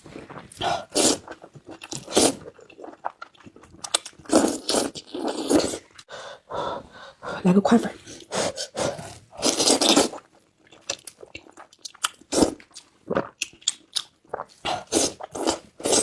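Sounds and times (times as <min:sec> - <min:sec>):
loud noodle slurp: 0:00.1 - 0:03.1, 0:04.1 - 0:05.9, 0:08.4 - 0:10.3, 0:14.3 - 0:16.0
wet chewing with smacking: 0:08.9 - 0:16.0.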